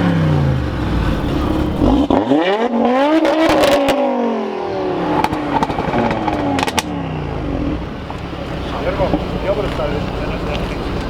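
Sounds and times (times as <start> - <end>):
car engine accelerating: 0.0 - 11.0
sharp exhaust cracks: 5.1 - 7.0.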